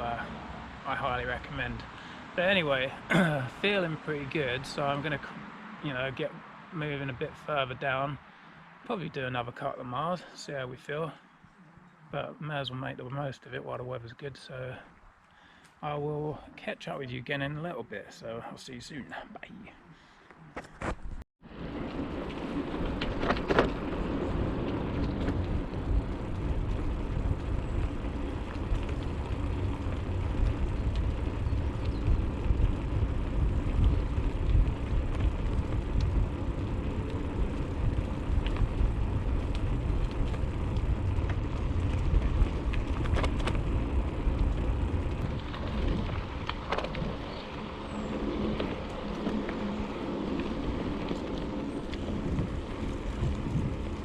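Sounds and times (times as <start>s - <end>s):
bicycle tyres rolling on trail: 0.0s - 19.2s, 19.9s - 54.0s
wind rumbling on microphone: 20.5s - 54.0s
small clicks and rattles: 37.0s - 47.4s.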